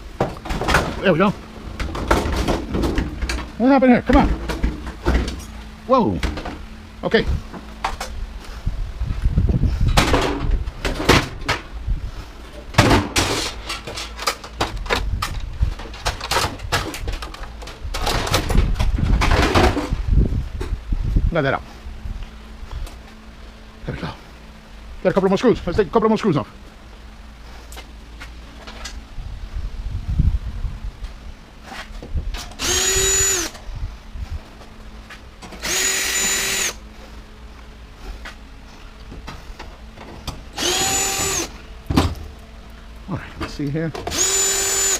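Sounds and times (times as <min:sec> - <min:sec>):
metal parts knocking and rattling: 0:12.8 - 0:20.0
power drill whine: 0:32.6 - 0:33.6, 0:35.6 - 0:36.8, 0:40.5 - 0:41.6, 0:44.1 - 0:44.9.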